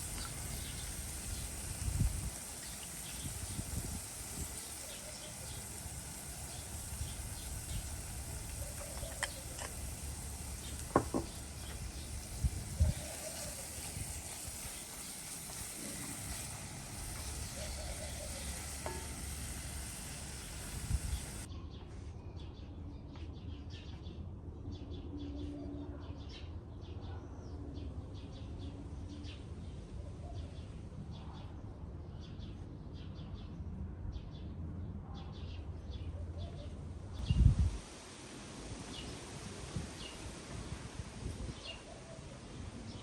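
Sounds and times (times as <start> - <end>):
food sizzling in hot oil: 0.0 - 21.5.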